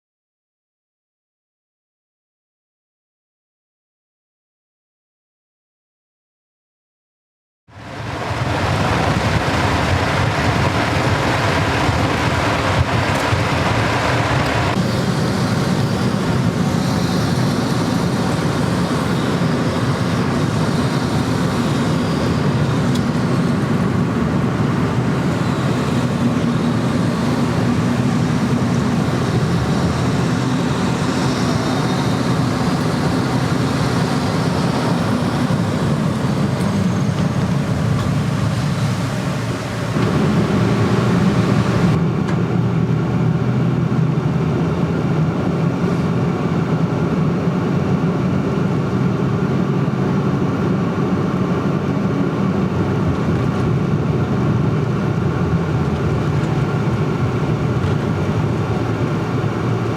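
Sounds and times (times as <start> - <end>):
continuous rumbling noise: 7.7 - 59.9.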